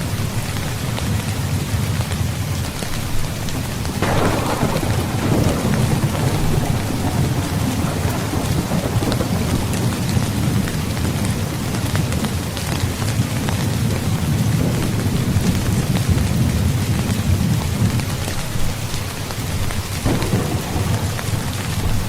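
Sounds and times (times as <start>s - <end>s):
heavy rain: 0.0s - 22.0s
thunder rumbling: 0.0s - 22.0s
sharp thunderclap: 3.9s - 18.4s, 20.0s - 22.0s.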